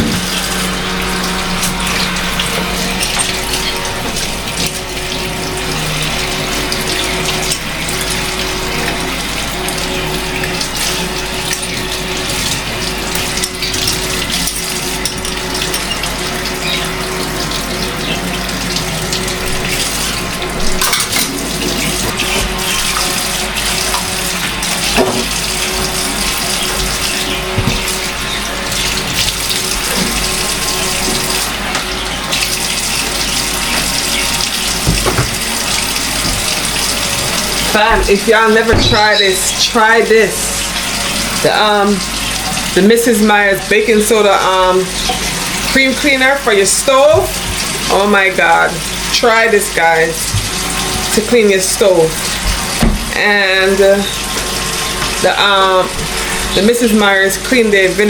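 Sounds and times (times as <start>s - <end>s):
tap water running into sink: 0.0s - 58.0s
knocks of things handled in sink: 24.9s - 26.0s, 26.8s - 28.1s, 34.7s - 39.2s.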